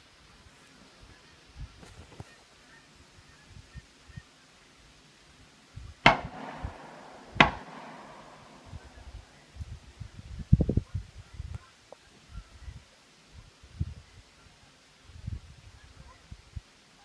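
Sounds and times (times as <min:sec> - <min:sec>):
shotgun shots with echo: 0:06.0 - 0:09.4.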